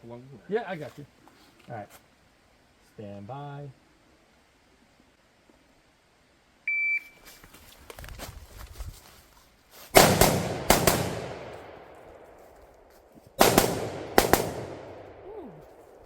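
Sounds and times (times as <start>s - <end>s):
gunshots with echo: 10.0s - 11.9s, 13.4s - 15.3s.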